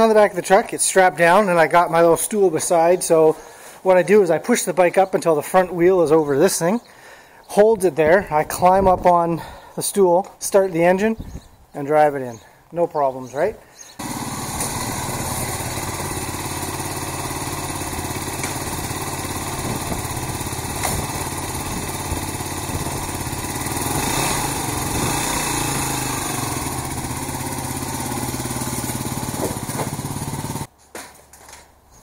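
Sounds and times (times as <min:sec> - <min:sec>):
motorcycle engine idling and revving: 0:14.0 - 0:30.7.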